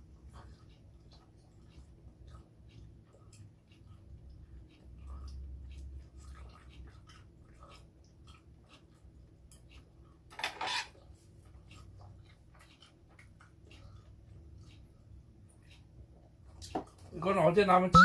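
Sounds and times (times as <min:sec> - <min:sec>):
utensils clicking on dishes: 0:10.3 - 0:11.0.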